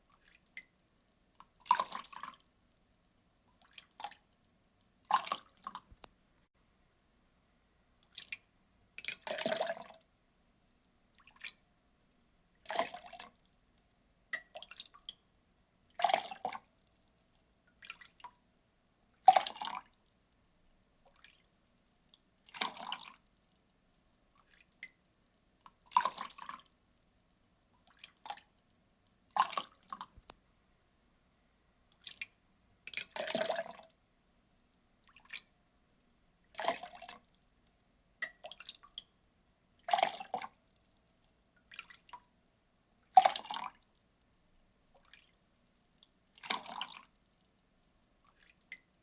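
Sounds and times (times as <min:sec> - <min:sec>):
water dripping: 0:00.0 - 0:06.2, 0:08.0 - 0:30.4, 0:31.9 - 0:49.0
water pouring in splashes: 0:09.0 - 0:10.0, 0:12.6 - 0:13.4, 0:22.4 - 0:23.2, 0:25.8 - 0:26.7, 0:32.9 - 0:33.9, 0:36.5 - 0:37.3, 0:39.8 - 0:40.5, 0:43.1 - 0:43.8, 0:45.0 - 0:45.4, 0:46.4 - 0:47.1.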